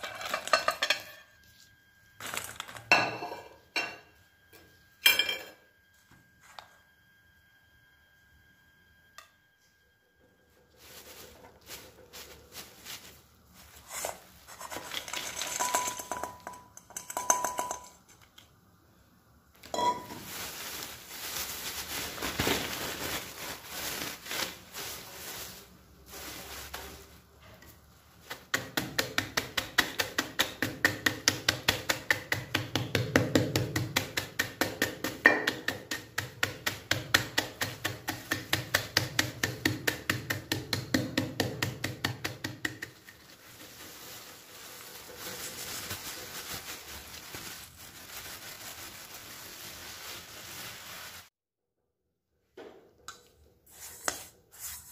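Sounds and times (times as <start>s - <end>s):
metal utensil clinking against bowl: 15.1s - 18.1s
beating mixture in bowl: 28.3s - 51.2s.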